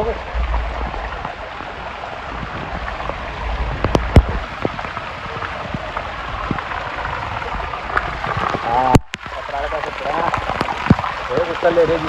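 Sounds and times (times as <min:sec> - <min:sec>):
heavy rain pouring: 0:00.0 - 0:12.0
sharp raindrops striking close: 0:00.0 - 0:12.0.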